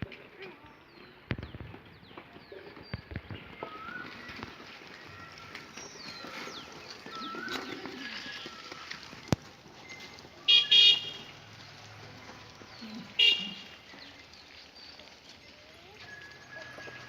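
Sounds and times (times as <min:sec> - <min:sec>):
small birds chirping: 0:00.0 - 0:17.0
high-pitched call or honk: 0:10.5 - 0:11.2, 0:13.2 - 0:13.7.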